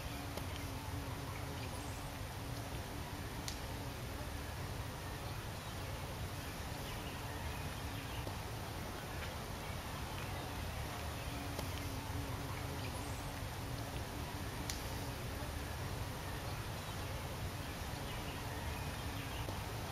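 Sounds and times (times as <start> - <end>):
low outdoor rumble: 0.0 - 19.9
faint light clicks: 3.4 - 3.7, 13.7 - 15.0.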